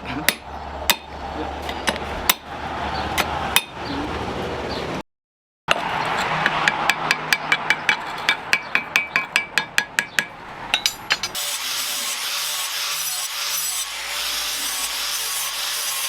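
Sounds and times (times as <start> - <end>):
sawing or filing scrape: 5.9 - 6.7, 11.2 - 16.0.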